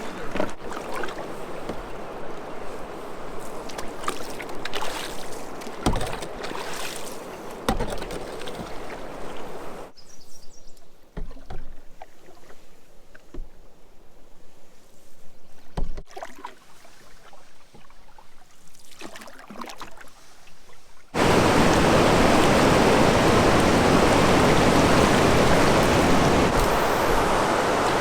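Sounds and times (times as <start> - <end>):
canoe knocks: 0.2 - 2.1, 5.6 - 9.8
rushing whitewater: 0.8 - 9.9, 21.2 - 28.0.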